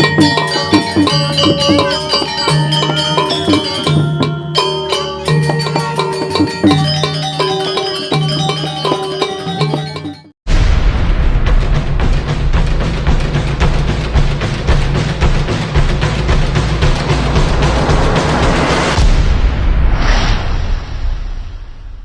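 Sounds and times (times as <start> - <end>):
gamelan music: 0.0 - 10.4.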